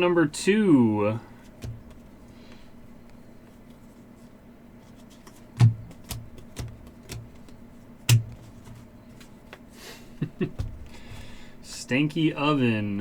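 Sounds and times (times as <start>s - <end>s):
cards tapping on a tabletop: 1.6s - 2.0s, 5.2s - 8.8s.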